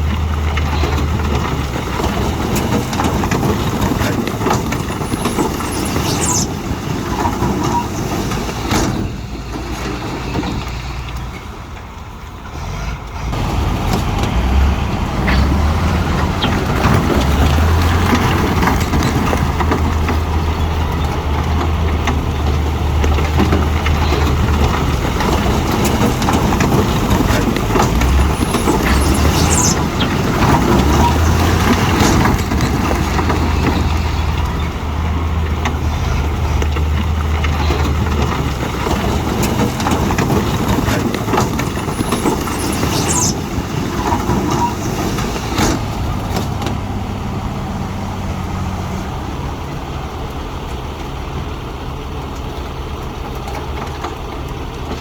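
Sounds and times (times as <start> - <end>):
diesel earthmoving machinery running: 0.0 - 55.0.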